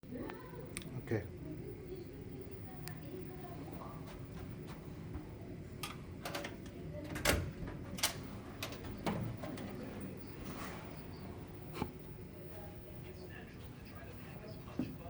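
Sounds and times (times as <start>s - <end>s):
door clicks and knocks: 5.8s - 9.8s.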